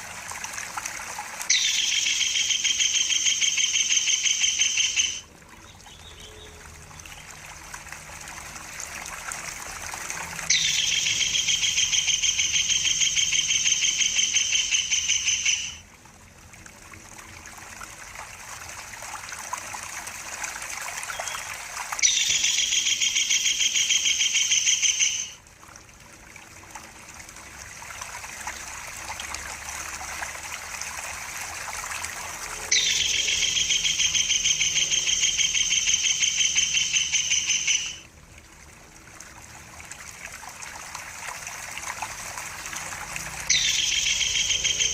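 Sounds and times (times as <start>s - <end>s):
trickling water: 0.0s - 44.9s
bird trilling: 1.5s - 5.3s, 10.5s - 15.8s, 21.1s - 25.4s, 32.7s - 38.0s, 43.5s - 44.9s.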